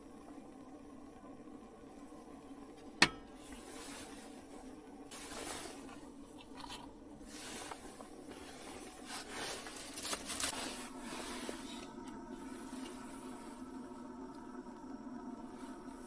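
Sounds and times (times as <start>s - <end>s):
faint steady hum: 0.0s - 16.0s
rubbing and rustling of objects: 3.3s - 13.7s.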